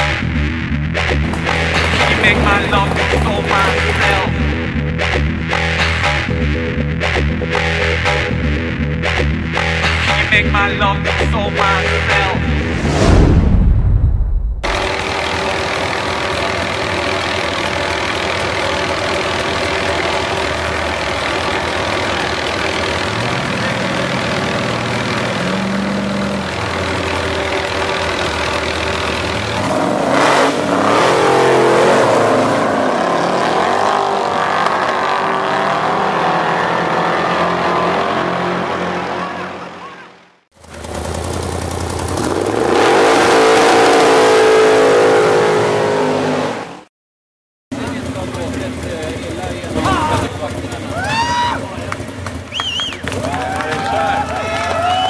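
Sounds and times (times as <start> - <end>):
car engines idling and revving: 0.0 - 13.0, 14.6 - 46.9, 47.7 - 55.0.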